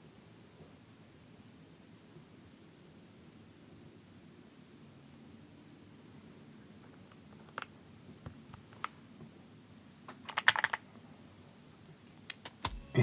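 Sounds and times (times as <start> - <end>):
mechanical keyboard clacking: 10.1 - 10.8.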